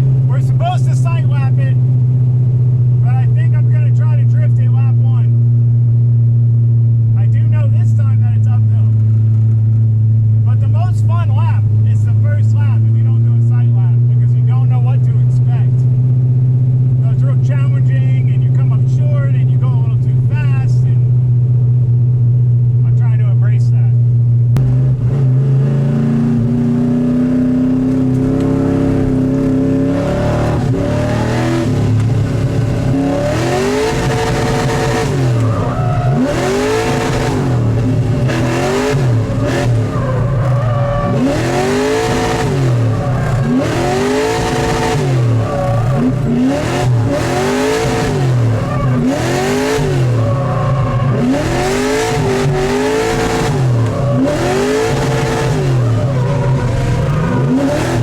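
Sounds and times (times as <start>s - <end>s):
car engine revving: 0.0s - 58.0s
tyre squeal: 34.0s - 46.2s, 49.7s - 52.6s.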